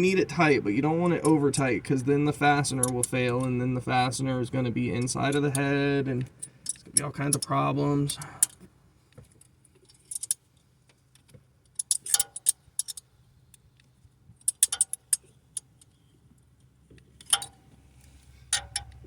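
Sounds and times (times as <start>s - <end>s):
metal tools clicking and clinking: 6.3s - 8.6s, 9.8s - 10.4s, 11.7s - 13.0s, 14.4s - 15.9s, 17.2s - 17.6s, 18.5s - 19.0s.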